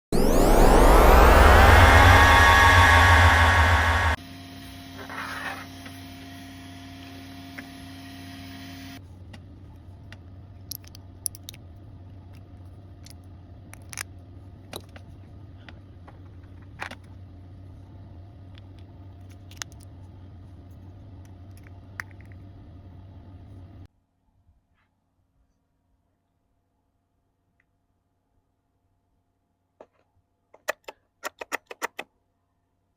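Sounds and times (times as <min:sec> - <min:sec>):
low steady hum: 0:00.1 - 0:24.6.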